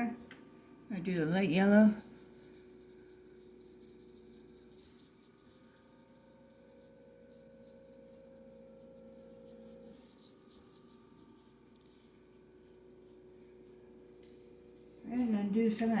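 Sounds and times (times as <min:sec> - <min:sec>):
low electrical hum: 0:00.0 - 0:16.0
paintbrush scratching: 0:02.0 - 0:15.3.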